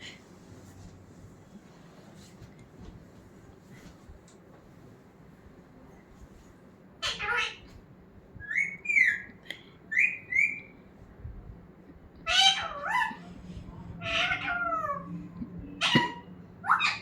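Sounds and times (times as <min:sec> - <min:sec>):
parrot calling and whistling: 0:08.4 - 0:10.8, 0:12.2 - 0:13.4, 0:14.0 - 0:17.0.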